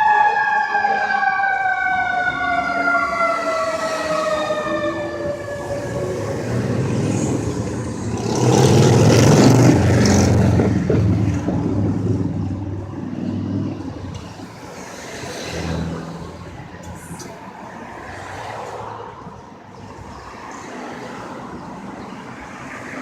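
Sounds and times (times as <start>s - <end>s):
fire engine siren: 0.0s - 10.6s
engine accelerating: 5.8s - 12.6s.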